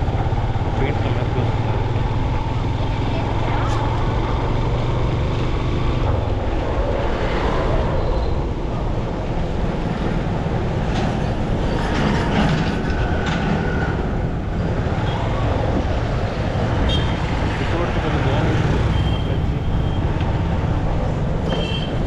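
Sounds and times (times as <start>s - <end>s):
motorcycle engine rumble: 0.0s - 7.0s
road noise: 0.0s - 22.0s.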